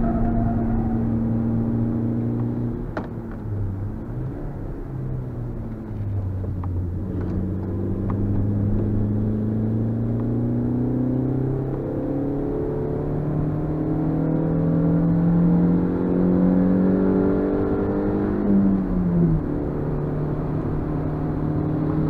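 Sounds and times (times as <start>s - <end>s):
car engine from inside cabin: 0.0s - 22.0s.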